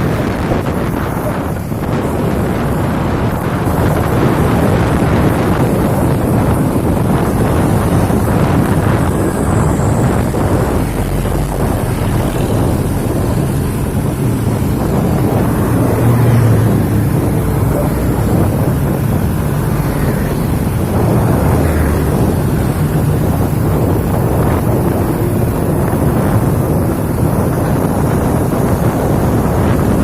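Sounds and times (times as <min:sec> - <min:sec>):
diesel truck engine rumbling: 0:00.0 - 0:30.0
wind buffeting microphone: 0:00.0 - 0:30.0.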